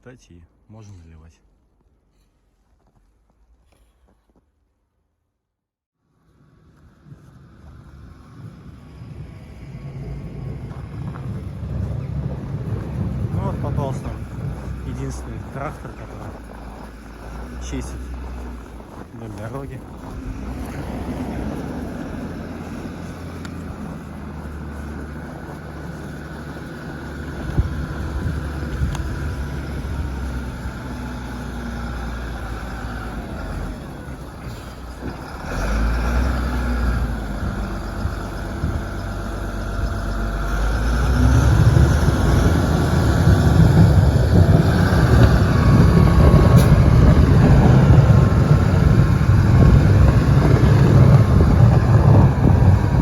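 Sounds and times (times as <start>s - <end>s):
tractor engine running: 6.4s - 53.0s.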